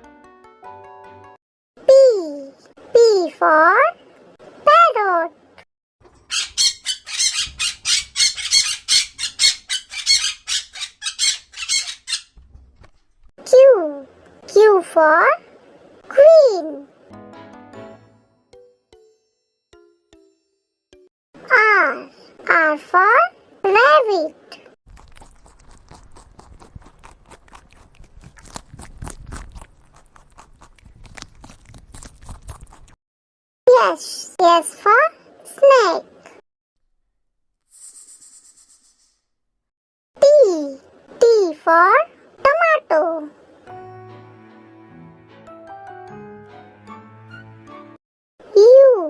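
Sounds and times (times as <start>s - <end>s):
parrot squawking: 6.2s - 12.4s
rabbit chewing: 24.9s - 33.0s.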